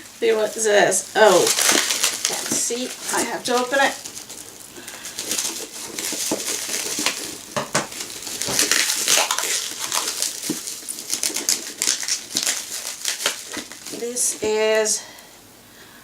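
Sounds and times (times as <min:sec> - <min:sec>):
packaging crackling and rustling: 0:00.0 - 0:15.3.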